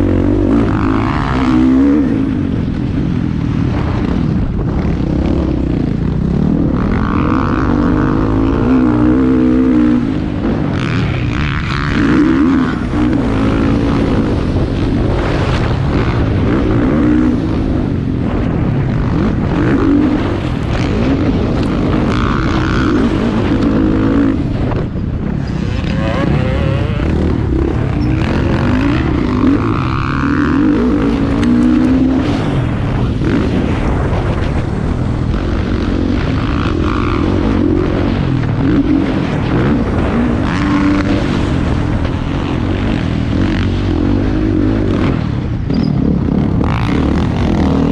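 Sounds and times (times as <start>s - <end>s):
motocross bike engines revving: 0.0s - 47.9s.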